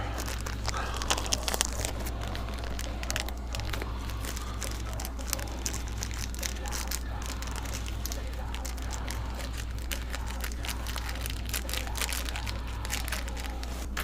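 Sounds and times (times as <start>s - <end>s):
plastic bags crinkling: 0.0s - 14.0s
steady low hum: 0.0s - 14.0s.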